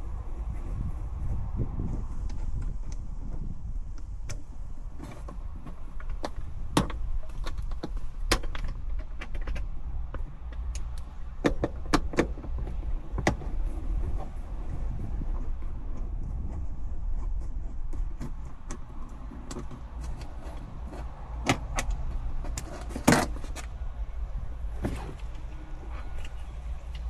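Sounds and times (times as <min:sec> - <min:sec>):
plastic trim clicking and knocking: 0:05.2 - 0:13.6
steady low rumble: 0:09.7 - 0:27.0.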